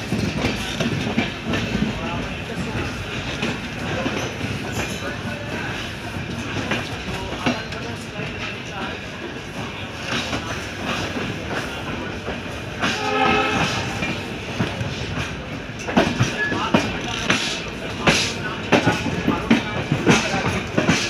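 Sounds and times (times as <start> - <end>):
train horn: 12.8 - 14.3.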